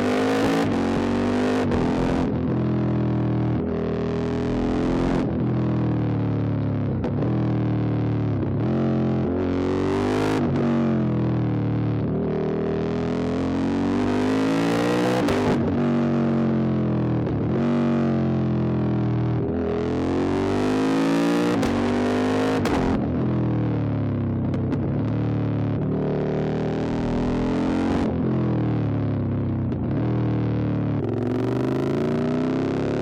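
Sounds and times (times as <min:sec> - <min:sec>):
motorcycle engine revving: 0:00.0 - 0:07.5, 0:19.6 - 0:33.0.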